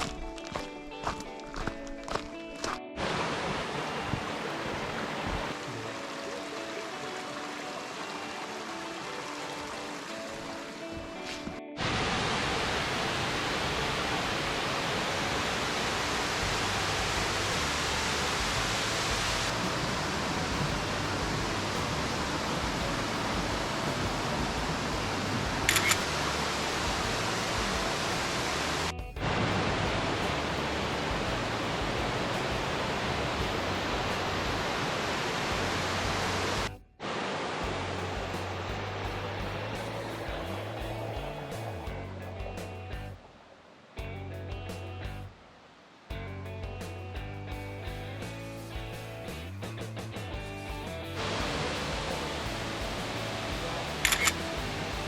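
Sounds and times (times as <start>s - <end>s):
waterfall roaring: 2.6s - 41.9s, 51.2s - 55.0s
sharp click: 25.7s - 26.1s, 54.0s - 54.4s.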